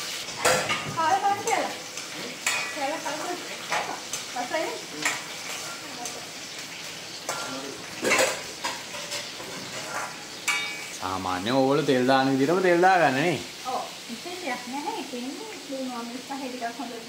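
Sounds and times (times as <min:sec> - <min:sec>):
spoon scraping a metal pan: 0:00.0 - 0:04.4, 0:05.0 - 0:11.0
food sizzling in a wok: 0:00.0 - 0:17.0.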